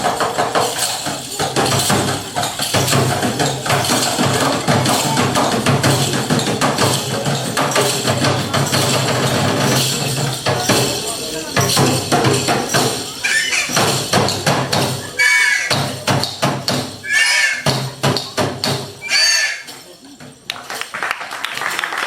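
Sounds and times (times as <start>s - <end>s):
wooden percussive knocks: 0.0s - 20.5s.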